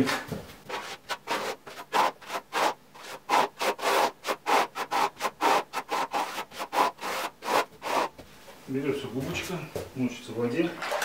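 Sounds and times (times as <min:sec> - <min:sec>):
scratchy rubbing on plaster: 0:00.7 - 0:08.2.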